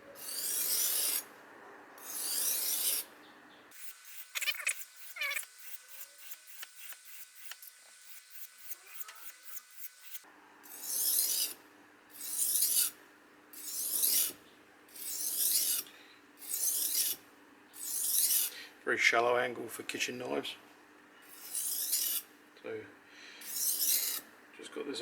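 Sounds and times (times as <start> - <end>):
knife rasping on whetstone: 0.2 - 1.3, 2.0 - 3.1, 3.7 - 13.0, 13.6 - 17.2, 17.8 - 18.6, 21.2 - 22.3, 23.4 - 24.3.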